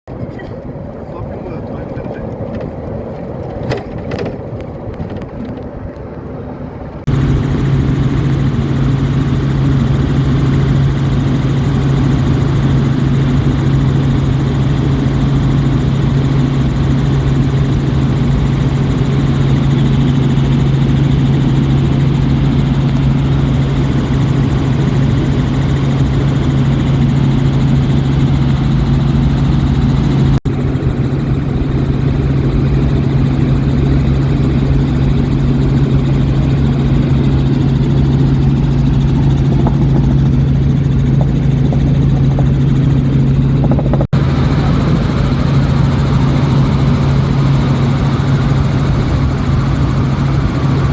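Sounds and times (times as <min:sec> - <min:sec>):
helicopter engine and rotor drone: 0:00.1 - 0:50.9
wind rushing: 0:31.0 - 0:48.1.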